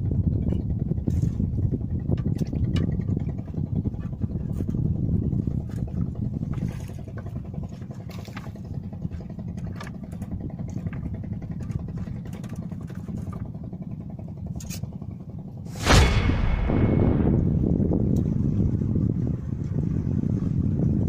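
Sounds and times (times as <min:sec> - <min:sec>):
engine rumbling: 0:00.0 - 0:20.7.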